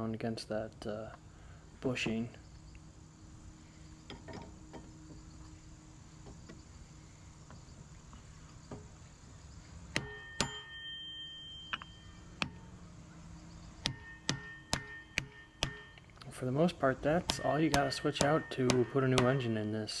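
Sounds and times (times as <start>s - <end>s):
hammer striking metal: 9.9s - 12.8s, 13.8s - 16.1s, 16.7s - 19.6s.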